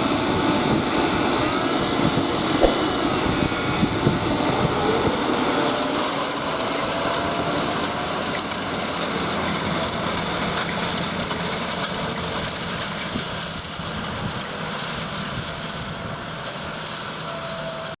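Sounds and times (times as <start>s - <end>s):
tractor engine running: 6.3s - 17.3s.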